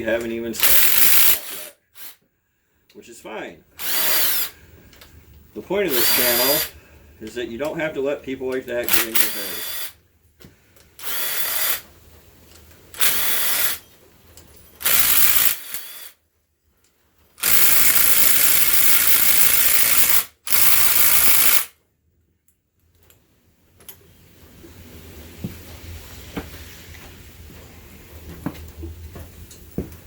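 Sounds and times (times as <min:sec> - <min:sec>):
power tool spinning out fasteners: 0:00.6 - 0:02.2, 0:03.8 - 0:04.6, 0:05.9 - 0:06.7, 0:08.9 - 0:10.0, 0:11.0 - 0:11.9, 0:12.9 - 0:13.9, 0:14.8 - 0:16.2, 0:17.4 - 0:21.8.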